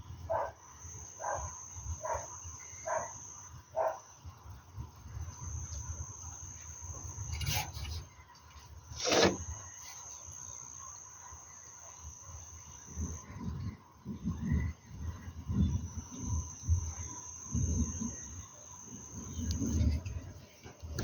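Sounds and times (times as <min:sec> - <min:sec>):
dog barking: 0:00.3 - 0:00.6, 0:01.2 - 0:03.2, 0:03.8 - 0:04.0.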